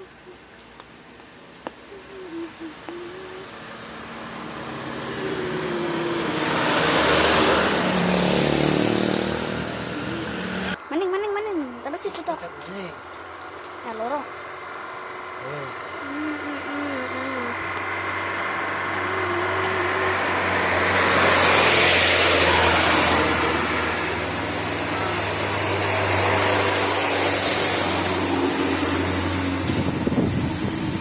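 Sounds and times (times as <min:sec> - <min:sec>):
truck engine working hard: 0:01.1 - 0:10.8, 0:13.0 - 0:31.0
turbocharger whistle: 0:15.4 - 0:31.0.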